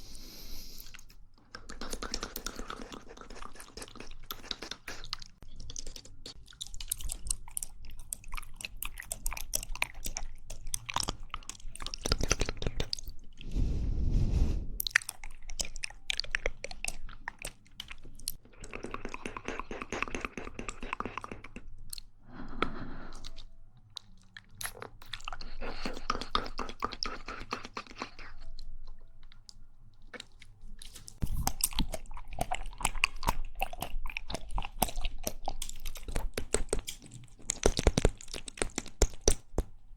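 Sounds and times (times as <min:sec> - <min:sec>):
person chewing wet mouth clicks: 0:00.6 - 0:13.4, 0:14.8 - 0:39.7.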